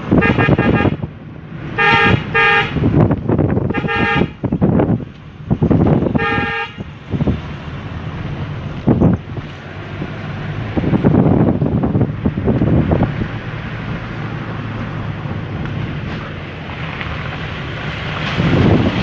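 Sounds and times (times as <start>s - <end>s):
road and wind noise: 0.0s - 19.0s
vehicle horn honking: 0.1s - 1.1s, 1.7s - 2.9s, 3.6s - 4.4s, 6.1s - 6.9s.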